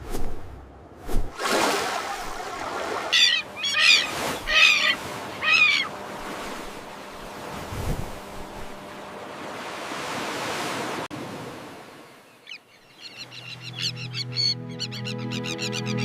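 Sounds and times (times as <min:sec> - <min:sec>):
high bird chirps: 0:03.1 - 0:05.9
background music with held notes: 0:13.8 - 0:16.0.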